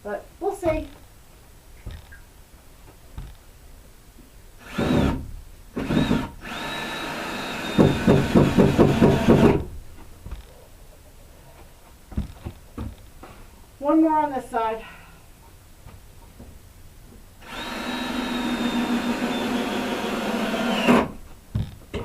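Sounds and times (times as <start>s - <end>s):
cordless drill boring into wood: 4.6s - 5.2s, 5.8s - 9.6s, 17.4s - 21.2s
drill bit juddering: 4.6s - 5.2s, 5.8s - 9.6s, 17.4s - 21.2s.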